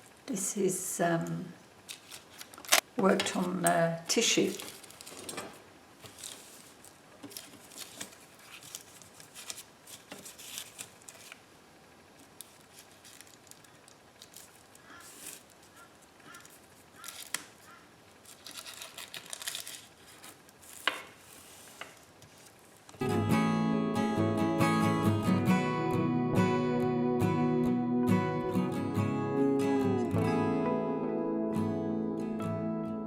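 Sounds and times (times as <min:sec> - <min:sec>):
tissue paper rustling: 0:04.2 - 0:05.4, 0:06.0 - 0:11.4, 0:12.4 - 0:17.4, 0:18.2 - 0:22.9.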